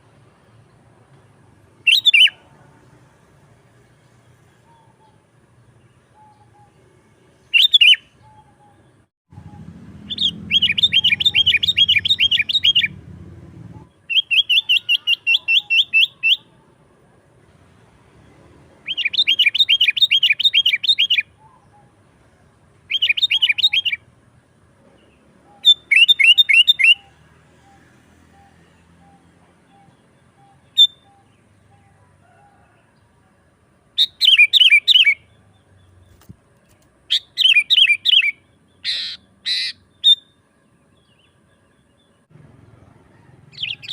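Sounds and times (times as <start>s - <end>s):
bird chattering calls: 9.5s - 13.0s, 14.1s - 16.5s, 37.1s - 40.2s.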